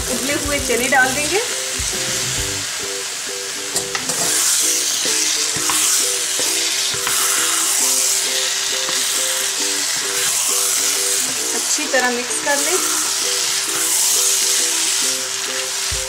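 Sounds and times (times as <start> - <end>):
food sizzling in a frying pan: 0.0 - 16.0
light background music: 0.0 - 16.0
spatula scraping a pan: 4.0 - 9.2.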